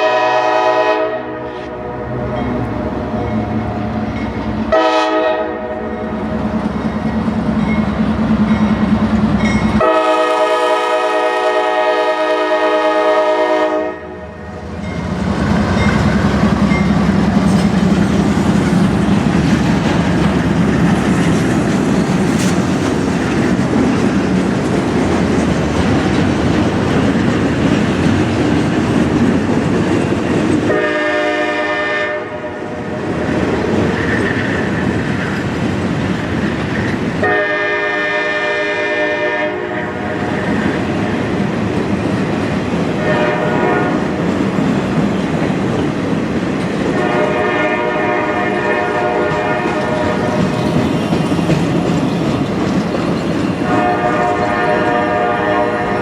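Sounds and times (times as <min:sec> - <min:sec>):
locomotive horn blasts: 0:00.0 - 0:02.2, 0:04.7 - 0:06.0, 0:09.8 - 0:14.4, 0:30.7 - 0:32.7, 0:37.2 - 0:40.2, 0:43.0 - 0:44.1, 0:46.9 - 0:50.4, 0:53.6 - 0:56.0
passing train rumble and rattle: 0:00.0 - 0:56.0.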